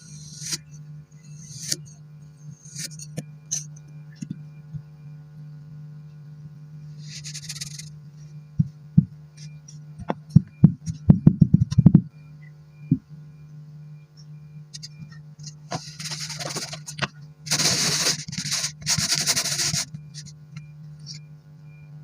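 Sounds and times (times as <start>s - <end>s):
steady low hum: 0.0s - 22.0s
sand being cut crunching: 17.5s - 19.9s.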